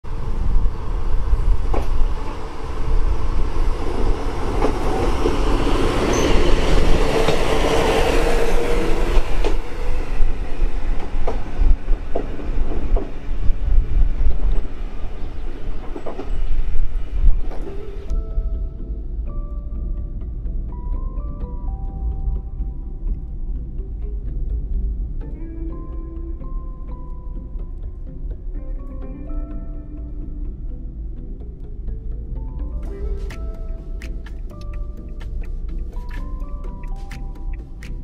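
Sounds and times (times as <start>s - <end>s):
diesel railcar running past: 0.1s - 18.2s
wheels clacking over rail joints: 0.2s - 18.2s
music: 2.9s - 14.7s, 17.3s - 38.0s.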